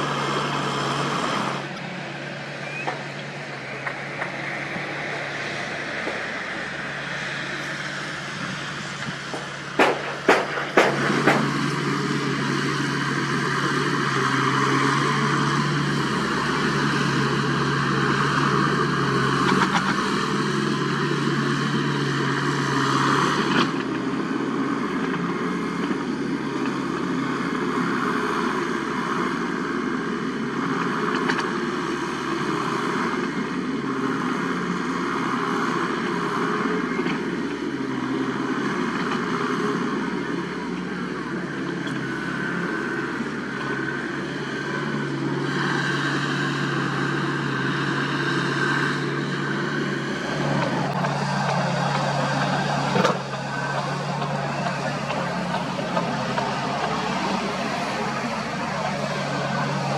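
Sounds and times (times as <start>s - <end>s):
diesel engine running: 0.0s - 59.9s
sharp knocks: 9.3s - 11.7s.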